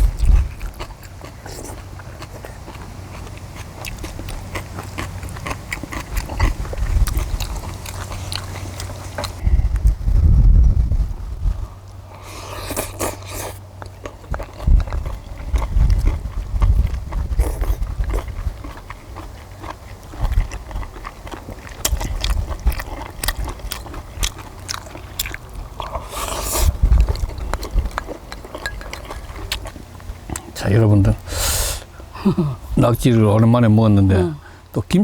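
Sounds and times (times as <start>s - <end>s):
people chewing: 0.0s - 10.0s, 11.7s - 34.7s.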